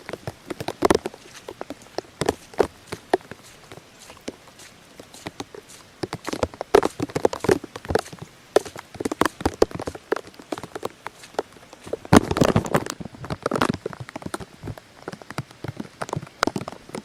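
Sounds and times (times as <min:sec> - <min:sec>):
water splashing and dripping: 0:00.0 - 0:17.0.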